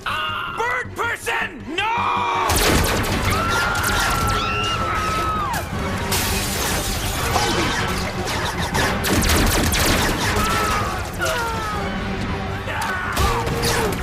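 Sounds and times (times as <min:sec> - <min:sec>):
dramatic cartoon music: 0:00.0 - 0:14.0
glass shattering and crashing: 0:06.1 - 0:07.4.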